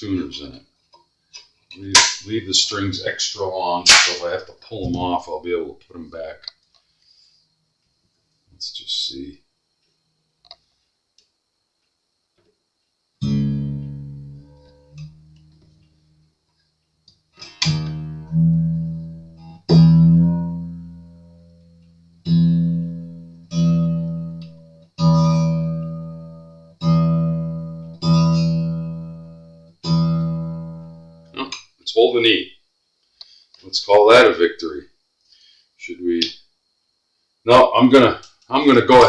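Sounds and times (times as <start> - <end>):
acoustic guitar string plucked: 13.2 - 15.8, 17.4 - 31.6.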